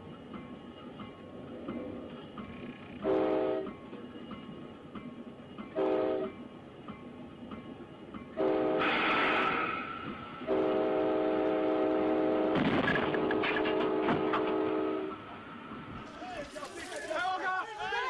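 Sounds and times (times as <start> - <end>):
locomotive air horn blasts: 3.0 - 3.7, 5.8 - 6.4, 8.4 - 9.7, 10.4 - 15.2.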